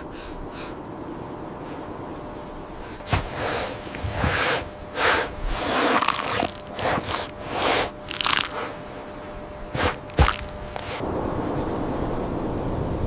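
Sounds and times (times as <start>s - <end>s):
crunching and scraping: 3.0s - 11.0s.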